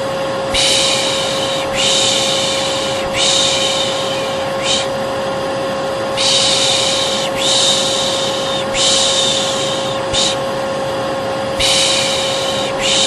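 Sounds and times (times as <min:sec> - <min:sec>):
hair dryer humming: 0:00.0 - 0:13.0
person shushing: 0:00.5 - 0:05.0, 0:06.2 - 0:10.5, 0:11.6 - 0:13.0.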